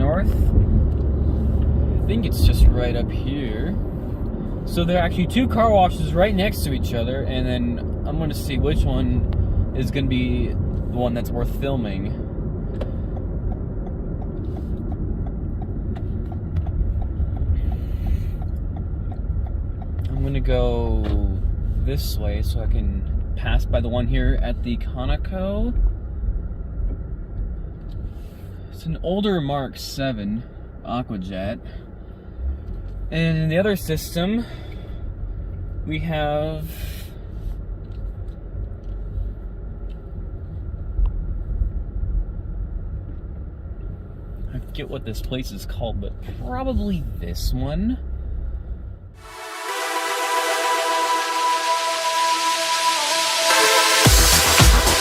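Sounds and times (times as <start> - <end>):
car road noise rumble: 0.0 - 49.6
turn signal ticking: 12.3 - 21.3.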